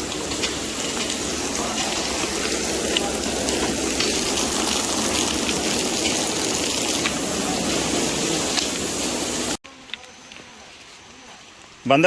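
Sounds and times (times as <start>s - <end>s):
flowing water rushing: 0.0s - 9.6s.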